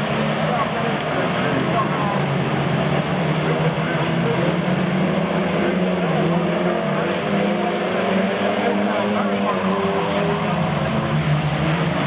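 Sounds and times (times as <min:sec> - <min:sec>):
stock car engines droning: 0:00.0 - 0:12.0.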